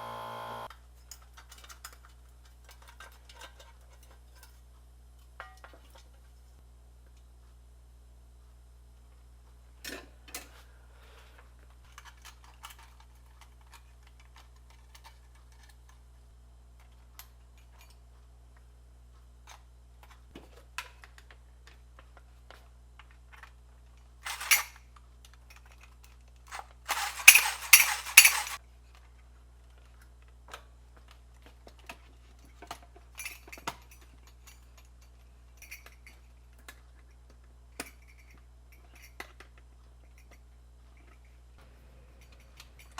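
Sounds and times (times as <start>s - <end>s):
low steady hum: 0.0s - 0.7s
hand tools clinking on workbench: 24.3s - 24.6s, 26.9s - 28.6s
short noisy bursts: 24.3s - 24.6s, 26.9s - 28.6s.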